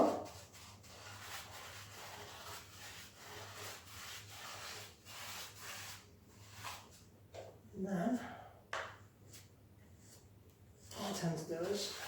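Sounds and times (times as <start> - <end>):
paintbrush scrubbing floor: 0.0 - 7.0.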